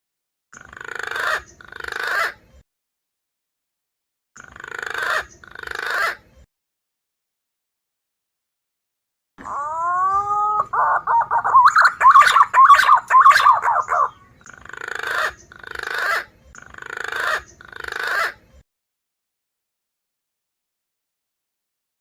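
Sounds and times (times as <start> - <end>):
bird whistling song: 9.4 - 18.3.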